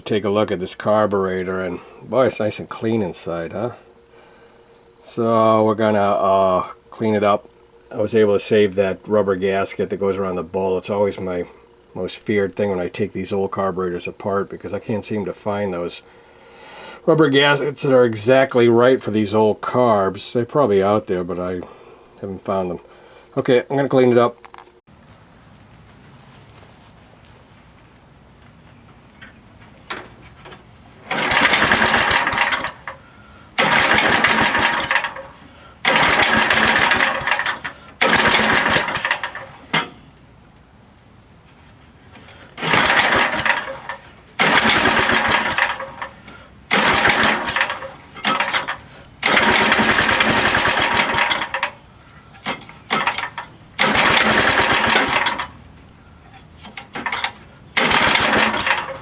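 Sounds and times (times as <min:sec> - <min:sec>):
small engine cranking: 0:31.0 - 0:39.9, 0:42.6 - 0:51.8, 0:52.4 - 0:55.6, 0:56.3 - 0:59.0.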